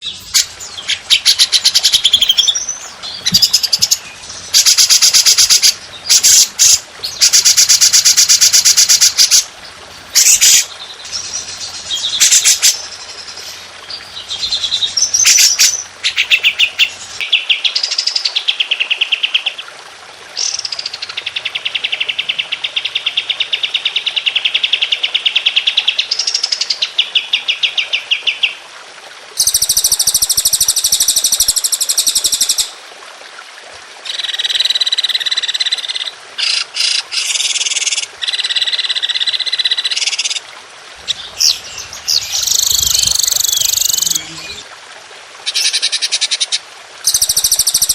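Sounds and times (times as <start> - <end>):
songbirds singing rapid trills: 41.0 - 44.6.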